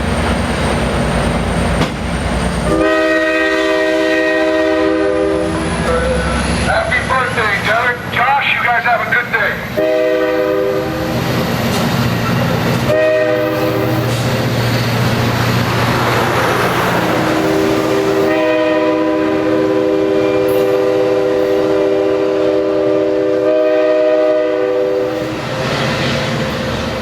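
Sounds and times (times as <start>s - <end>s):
diesel engine rumble: 0.0s - 2.8s
passing train noise: 0.0s - 27.0s
locomotive air horn blasts: 2.7s - 6.3s, 9.8s - 11.1s, 12.8s - 14.1s, 17.3s - 25.2s.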